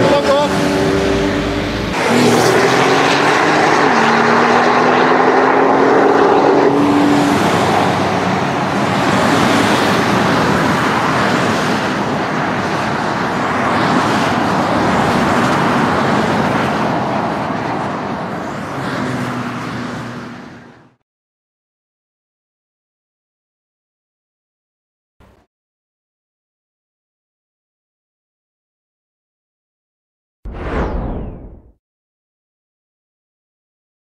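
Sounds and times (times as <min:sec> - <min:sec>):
car engine accelerating hard: 0:00.0 - 0:12.1
motorway traffic and tyre noise: 0:00.0 - 0:21.0.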